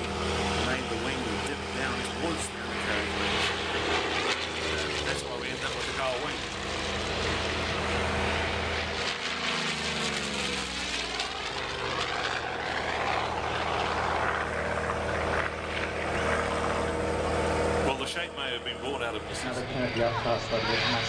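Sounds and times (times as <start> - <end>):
propeller plane flying past: 0.0 - 21.0.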